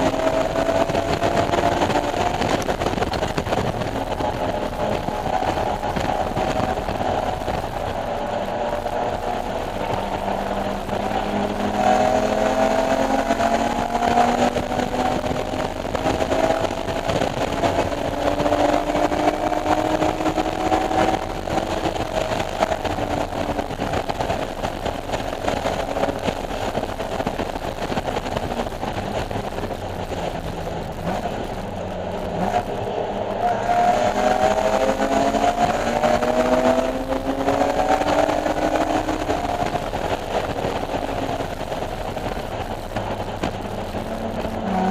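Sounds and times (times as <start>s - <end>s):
car engine at full throttle: 0.0s - 44.9s.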